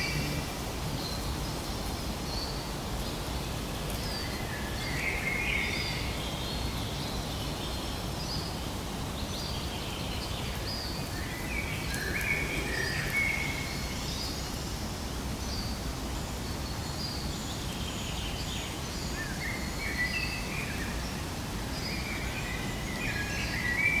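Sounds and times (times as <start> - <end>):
outdoor background noise: 0.0 - 24.0
birds chirping: 9.9 - 14.4.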